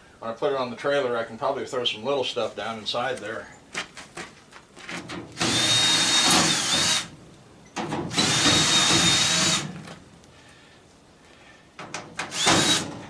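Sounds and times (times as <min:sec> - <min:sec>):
power drill whining: 0:05.4 - 0:07.1, 0:08.1 - 0:09.7, 0:12.3 - 0:13.0.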